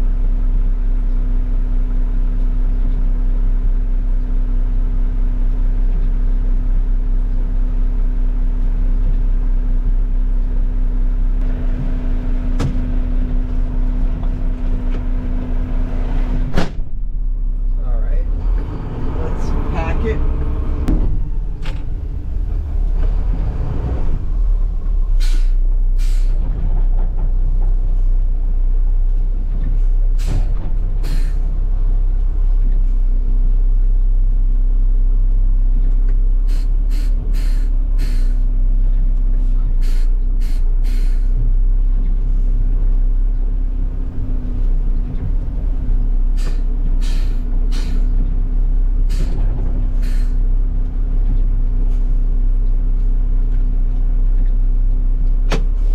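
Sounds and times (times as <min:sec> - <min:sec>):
diesel engine low rumble: 0:00.0 - 0:55.9
short sharp hisses: 0:25.2 - 0:26.3, 0:36.5 - 0:38.4, 0:39.8 - 0:41.3, 0:46.4 - 0:48.1, 0:50.0 - 0:50.4.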